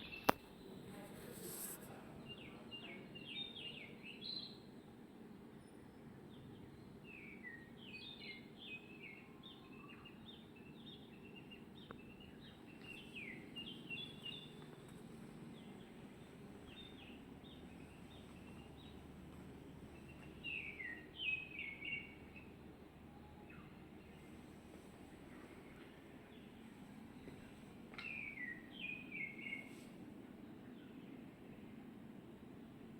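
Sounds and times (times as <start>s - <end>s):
small birds chirping: 0.0s - 31.3s
low hum: 11.8s - 28.4s.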